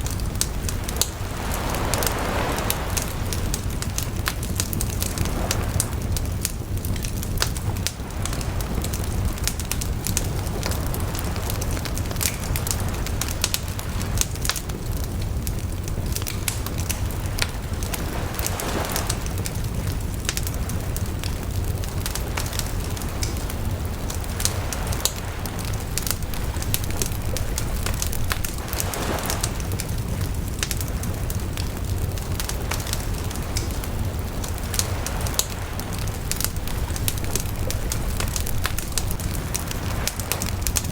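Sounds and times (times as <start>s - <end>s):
bonfire crackling and popping: 0.0s - 40.9s
fire hissing flares: 0.0s - 40.9s.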